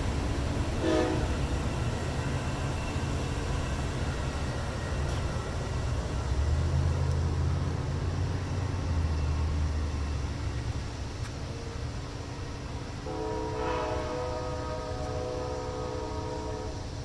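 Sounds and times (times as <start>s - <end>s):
diesel locomotive rumble: 0.0s - 17.0s
rail and wheel noise: 0.0s - 17.0s.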